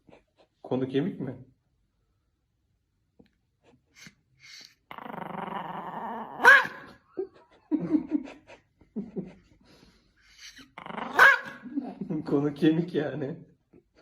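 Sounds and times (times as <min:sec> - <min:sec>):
small dog growling: 0:04.0 - 0:06.8, 0:10.4 - 0:11.7
small dog barking: 0:06.3 - 0:07.0, 0:11.0 - 0:11.7.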